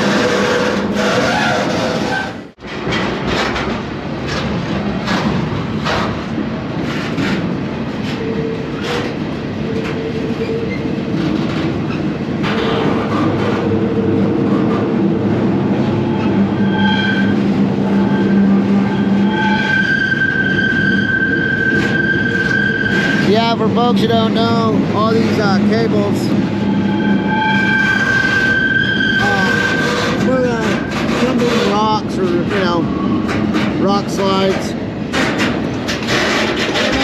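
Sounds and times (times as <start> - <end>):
train rolling rumble: 0.0 - 37.0
high wheel squeal: 16.0 - 23.7, 25.7 - 33.0.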